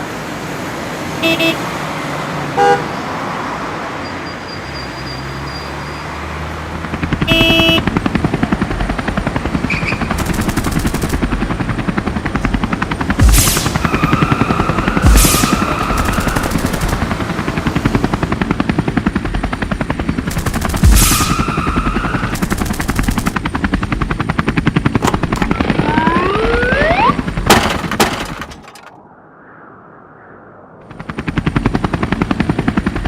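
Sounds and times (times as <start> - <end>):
fast mechanical pulsing: 6.8 - 28.9
rising whistle-like glides: 25.4 - 27.3, 28.9 - 31.4
faint hum: 28.7 - 31.1.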